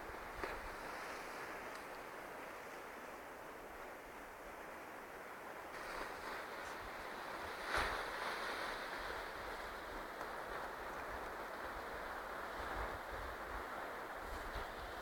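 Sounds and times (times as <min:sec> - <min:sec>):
sea surf washing on shore: 0:00.0 - 0:15.0
wind rumbling on microphone: 0:05.7 - 0:15.0.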